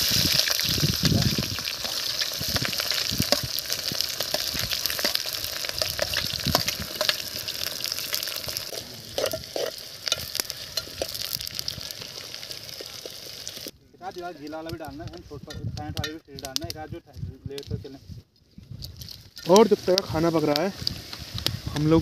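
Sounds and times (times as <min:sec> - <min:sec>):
onions sizzling in oil: 0:00.0 - 0:15.0, 0:19.4 - 0:22.0
metal spoon scraping pot: 0:08.7 - 0:11.3.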